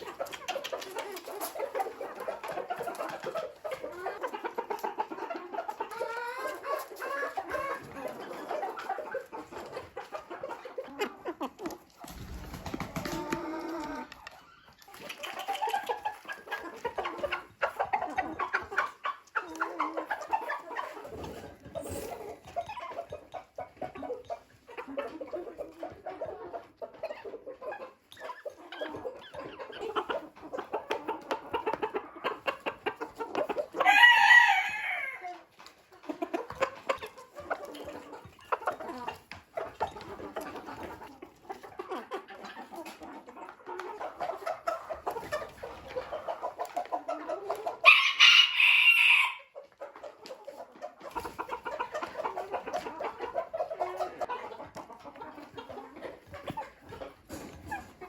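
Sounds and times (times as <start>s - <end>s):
chickens clucking: 0.0s - 58.0s
loud high chicken calls: 33.8s - 35.3s, 47.8s - 49.5s.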